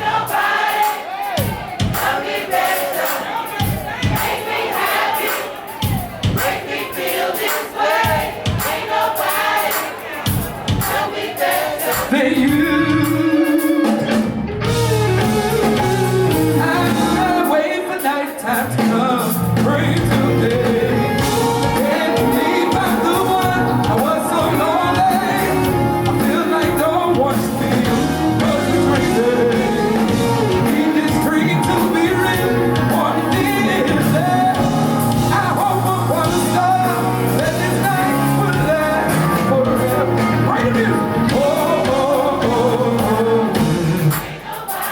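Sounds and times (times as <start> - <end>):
live band playing soul music: 0.0 - 44.9
person singing: 11.8 - 14.2, 15.5 - 44.9.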